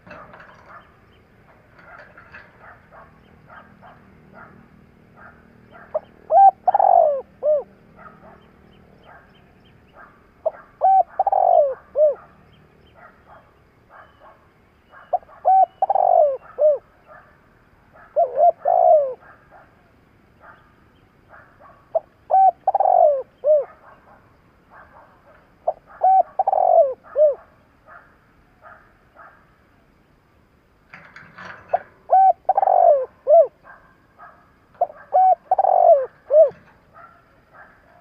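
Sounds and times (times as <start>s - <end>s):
dove cooing: 0.0s - 12.3s, 12.9s - 17.3s, 17.9s - 20.7s, 21.3s - 29.3s, 30.9s - 38.0s
small birds chirping: 0.0s - 30.2s.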